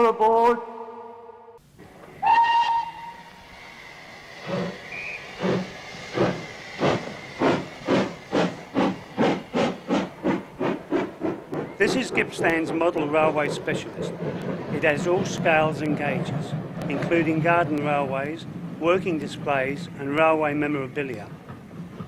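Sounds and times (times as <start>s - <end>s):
steam locomotive exhaust chuffs: 1.8s - 22.0s
steam hiss: 2.0s - 20.5s
steam whistle blast: 2.2s - 6.6s.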